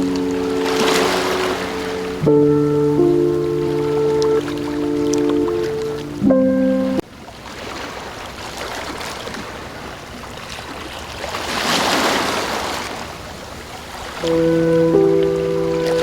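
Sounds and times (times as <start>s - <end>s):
held synth chord: 0.0s - 7.0s, 14.2s - 16.0s
ocean waves washing in: 0.0s - 9.0s, 14.0s - 16.0s.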